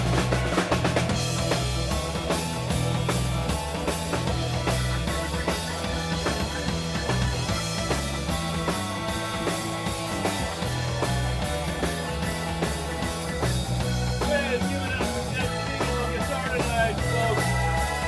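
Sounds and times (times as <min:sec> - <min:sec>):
rock band playing: 0:00.0 - 0:18.0.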